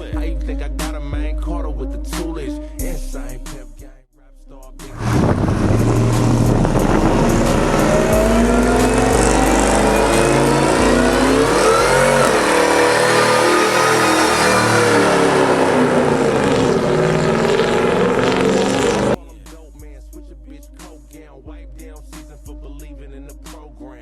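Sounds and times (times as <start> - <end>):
pickup truck engine revving: 4.9 - 19.2.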